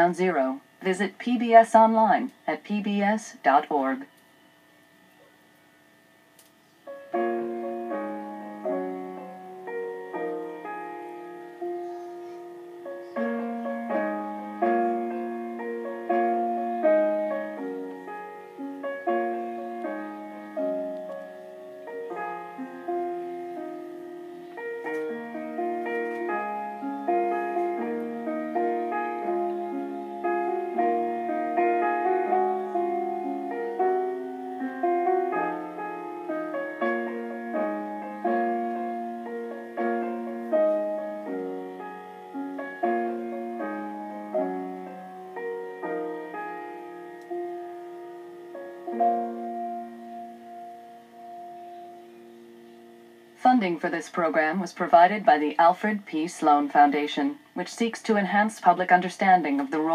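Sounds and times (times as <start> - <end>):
gentle solo piano music: 6.8 - 53.4.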